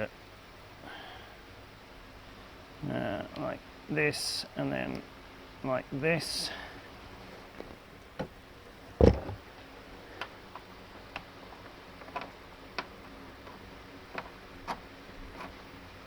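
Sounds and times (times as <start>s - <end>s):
loud knock: 9.0s - 9.4s.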